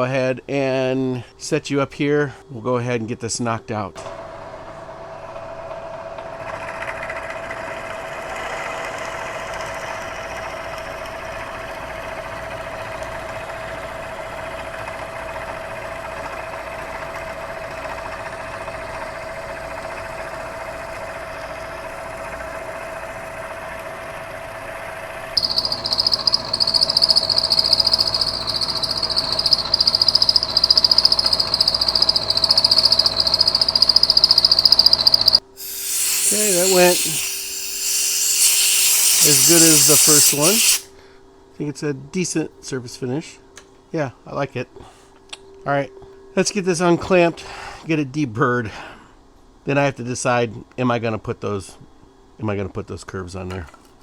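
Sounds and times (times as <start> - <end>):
end mill cutting metal: 25.4 - 40.8
milling machine spindle whine: 25.4 - 40.8.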